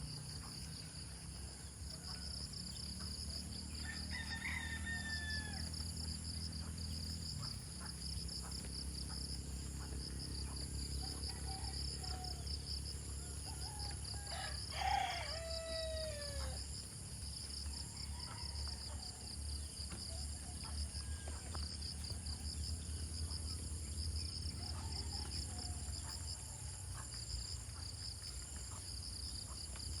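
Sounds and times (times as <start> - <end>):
insects chirring: 0.0 - 30.0
rooster crowing: 3.7 - 5.9, 11.0 - 16.6.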